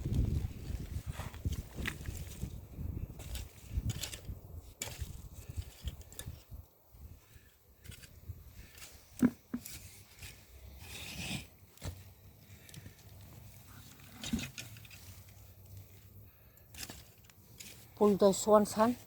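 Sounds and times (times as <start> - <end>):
digging tool knocking and scraping soil: 0.2 - 6.6, 7.8 - 13.4, 14.0 - 16.0
scratchy rustle: 16.7 - 19.0.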